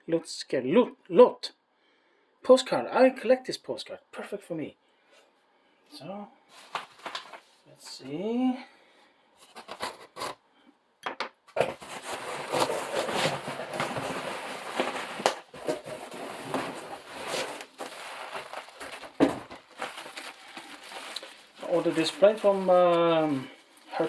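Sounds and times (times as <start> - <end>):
packaging rustling and crinkling: 6.5 - 7.6, 9.4 - 10.4, 11.6 - 24.0.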